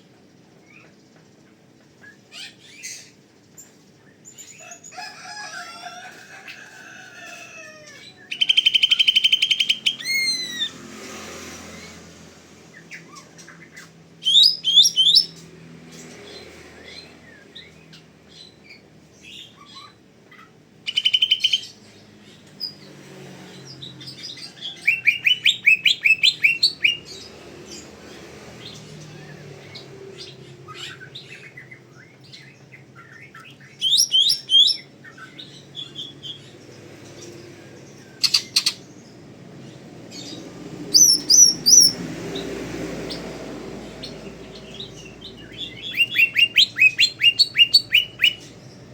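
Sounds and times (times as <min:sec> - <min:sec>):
bird whistling and trilling: 0:08.3 - 0:10.7, 0:14.2 - 0:15.4, 0:24.8 - 0:27.0, 0:33.0 - 0:36.1, 0:38.2 - 0:38.8, 0:40.9 - 0:42.0, 0:45.6 - 0:48.5
faint chirping: 0:41.0 - 0:42.0.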